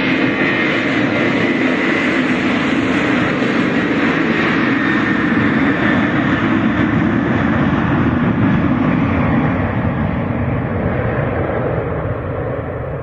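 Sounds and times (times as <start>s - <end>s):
jet engines at high power: 0.0s - 13.0s.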